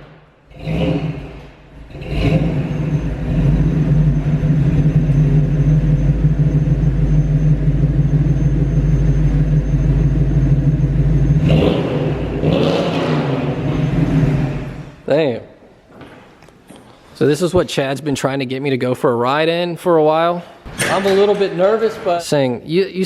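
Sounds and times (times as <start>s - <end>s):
vehicle engine humming: 0.0s - 15.1s.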